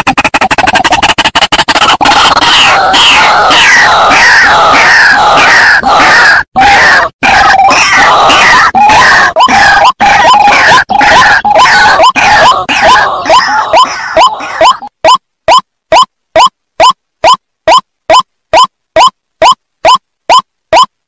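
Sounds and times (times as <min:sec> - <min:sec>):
waterhen calling loudly: 0:01.8 - 0:15.2.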